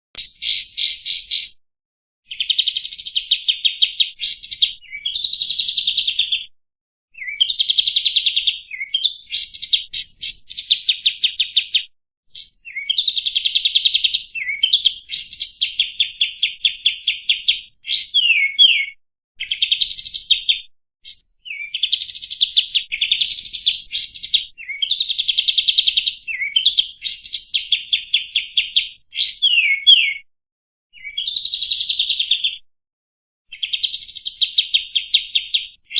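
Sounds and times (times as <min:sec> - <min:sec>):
bulbul singing trills: 0:00.2 - 0:01.6, 0:02.3 - 0:06.5, 0:07.1 - 0:30.2, 0:33.5 - 0:35.9.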